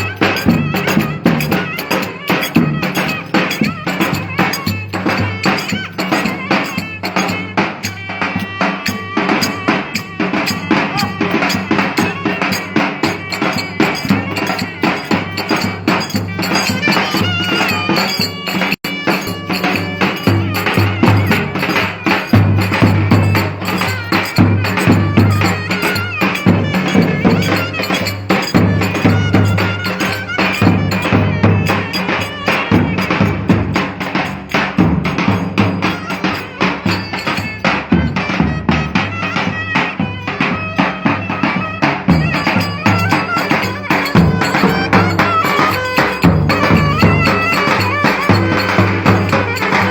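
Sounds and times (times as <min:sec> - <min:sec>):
clattering percussion: 0:00.0 - 0:49.9
fast drumming: 0:00.0 - 0:49.9
wavering melody line: 0:42.2 - 0:49.9.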